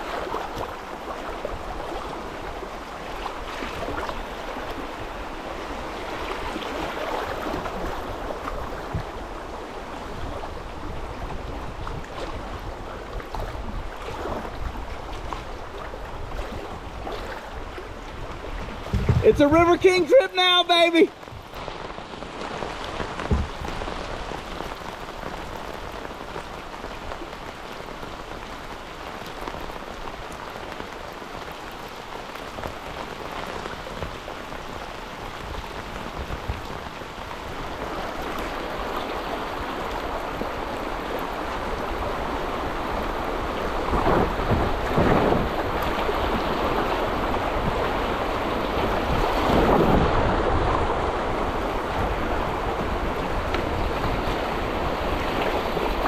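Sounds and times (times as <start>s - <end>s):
water splashing: 0.0s - 31.1s
rain falling on water: 0.0s - 56.0s
rushing water: 0.0s - 56.0s.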